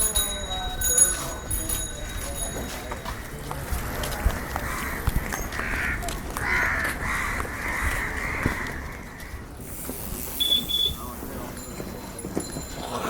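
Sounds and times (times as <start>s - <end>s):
crows cawing: 4.4s - 9.4s.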